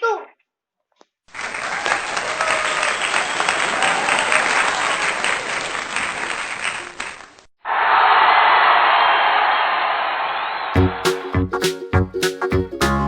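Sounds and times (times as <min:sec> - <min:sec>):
crowd applauding: 0:01.3 - 0:11.4.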